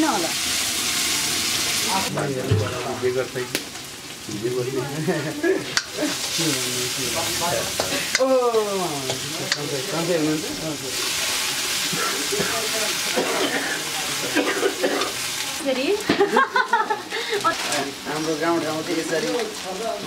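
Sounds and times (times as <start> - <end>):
greens sizzling in a wok: 0.0 - 20.0.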